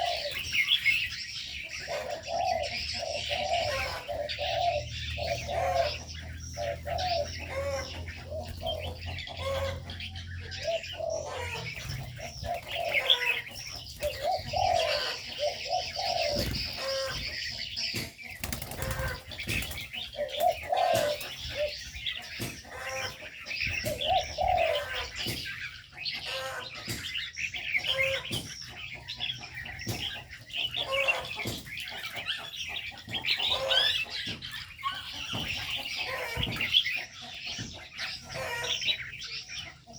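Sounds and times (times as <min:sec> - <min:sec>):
doves cooing: 0:00.0 - 0:39.9
small birds chirping: 0:00.0 - 0:39.9.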